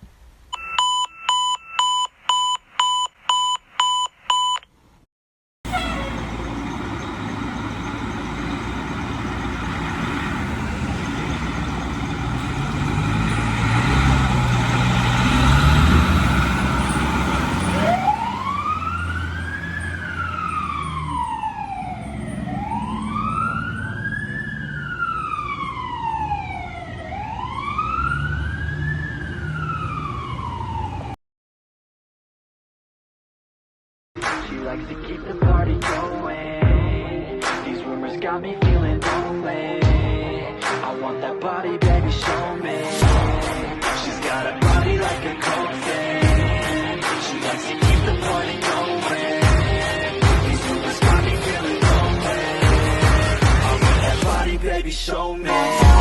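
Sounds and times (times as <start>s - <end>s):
short electronic beeps: 0.6s - 4.7s
electronic siren wailing: 5.7s - 14.7s, 15.3s - 31.2s, 55.5s - 56.0s
fire engine running: 5.7s - 31.1s, 43.0s - 56.0s.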